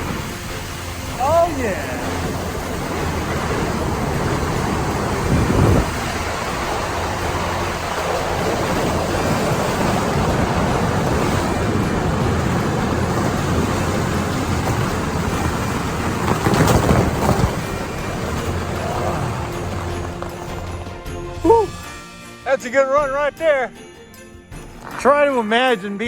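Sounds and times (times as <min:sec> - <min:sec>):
wind on microphone: 0:00.0 - 0:20.6
sled scraping over ice: 0:00.0 - 0:21.7.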